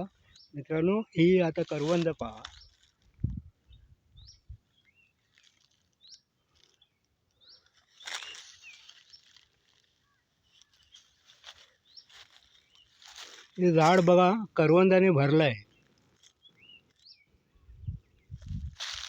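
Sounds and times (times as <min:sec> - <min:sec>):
faint bird chirps: 0:02.5 - 0:13.6.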